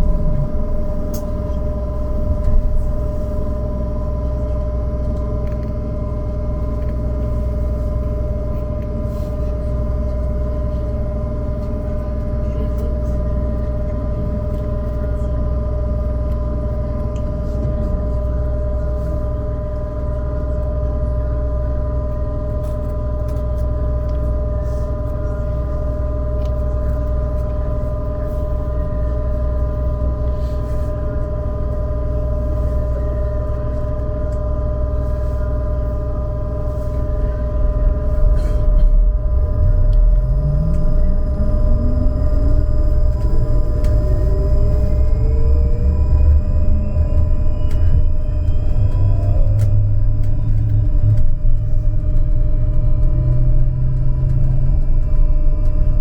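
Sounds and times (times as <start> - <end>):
rising traction motor whine: 0.0 - 18.4, 31.3 - 56.0
low rumble: 0.0 - 56.0
steady electrical hum: 34.5 - 56.0.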